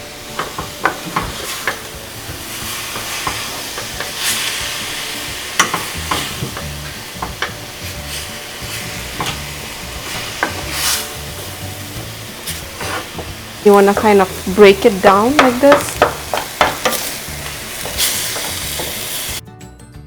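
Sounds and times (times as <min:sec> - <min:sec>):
meat sizzling in a pan: 0:00.0 - 0:19.4
utensil scraping a pan: 0:00.4 - 0:01.9, 0:02.5 - 0:19.4.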